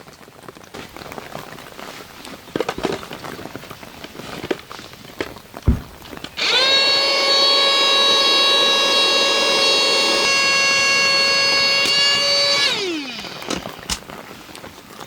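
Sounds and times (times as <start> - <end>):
small electric motor whining: 6.3 - 14.0.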